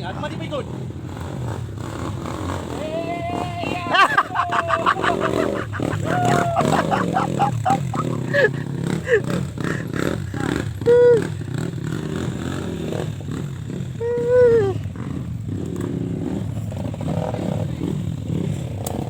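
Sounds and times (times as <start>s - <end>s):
off-road motorcycle engines: 0.0s - 19.0s
pitched calls rising and falling: 4.0s - 8.6s.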